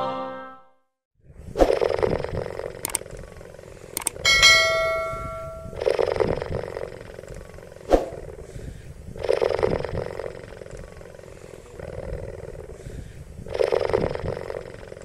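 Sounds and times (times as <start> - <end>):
sharp click: 2.8 - 3.0, 4.0 - 4.2
ringing chime: 4.3 - 5.8.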